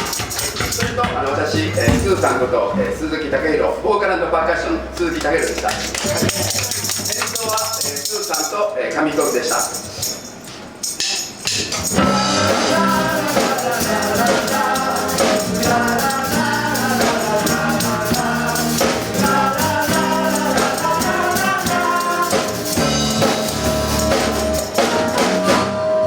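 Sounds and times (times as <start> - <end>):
shaker or tambourine: 0.0 - 1.0, 5.5 - 8.6, 9.2 - 25.7
live band playing: 11.9 - 26.0.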